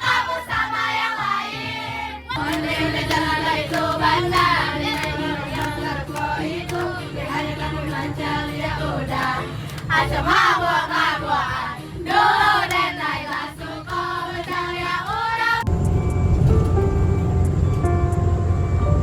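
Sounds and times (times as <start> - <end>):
group singing: 0.0 - 15.7
music: 0.0 - 19.0
low steady rumble: 15.6 - 19.0.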